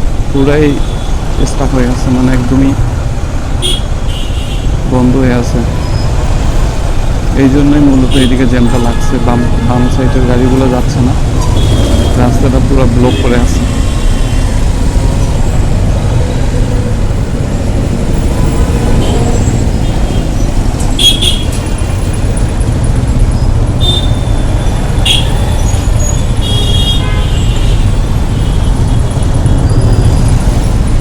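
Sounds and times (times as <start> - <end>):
traffic engines rumbling: 0.0 - 31.0
car horn toots: 3.6 - 4.7, 21.0 - 21.6, 23.8 - 24.4, 25.0 - 25.4, 26.0 - 29.7.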